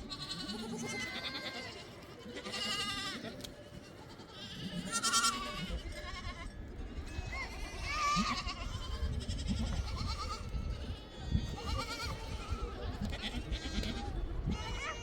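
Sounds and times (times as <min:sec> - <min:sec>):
goats bleating: 0:00.0 - 0:03.3, 0:04.1 - 0:06.5.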